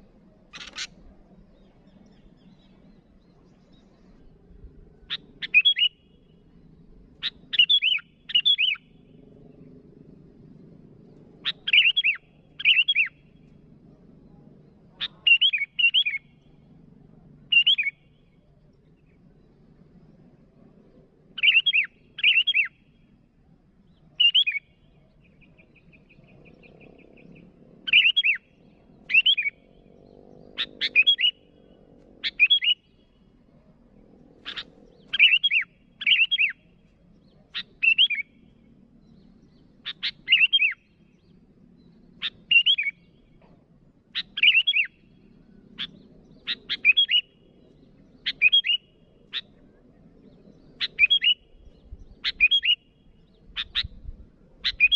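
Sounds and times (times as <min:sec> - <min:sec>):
faint rapid bird trill: 0:00.0 - 0:54.9
bird giving sharp calls: 0:00.5 - 0:01.0, 0:11.4 - 0:13.2, 0:29.0 - 0:29.6, 0:30.6 - 0:32.9, 0:34.4 - 0:36.7, 0:39.8 - 0:40.9, 0:42.2 - 0:43.0, 0:44.2 - 0:45.0, 0:45.8 - 0:47.3, 0:52.2 - 0:52.8, 0:53.4 - 0:54.9.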